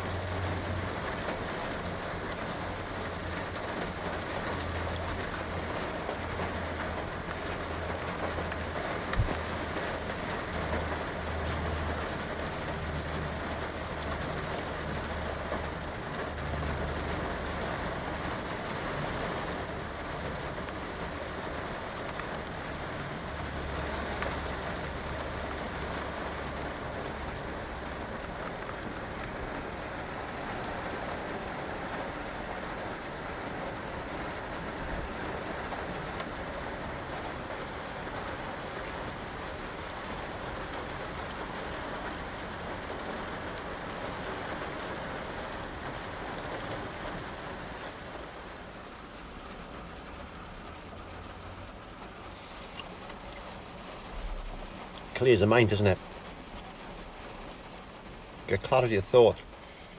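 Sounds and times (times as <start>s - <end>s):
rain pattering on a van roof: 0.0s - 59.9s.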